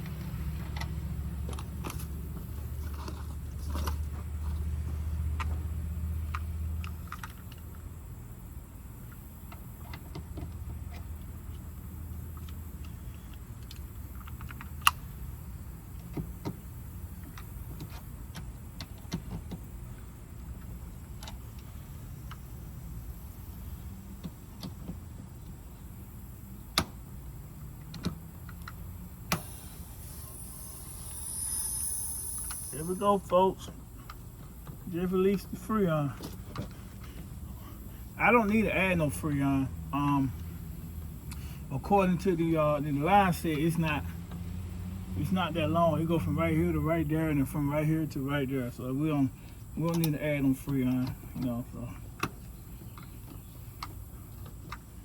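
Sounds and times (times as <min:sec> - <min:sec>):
low hum: 0:29.3 - 0:33.3
refrigerant hissing: 0:29.3 - 0:33.3.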